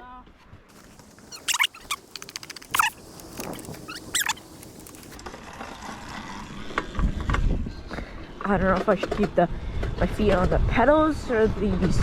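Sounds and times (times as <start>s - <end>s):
bike suspension squeaking: 0.7s - 5.2s
bike frame rattling clicks: 0.8s - 5.2s.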